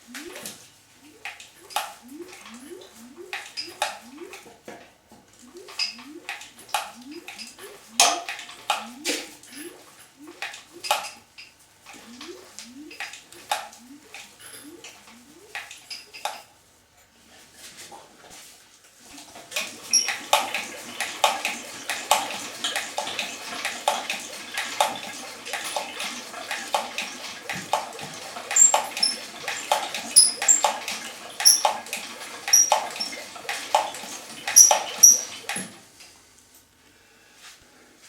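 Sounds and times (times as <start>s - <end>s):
engine with metallic clatter: 19.6s - 35.7s.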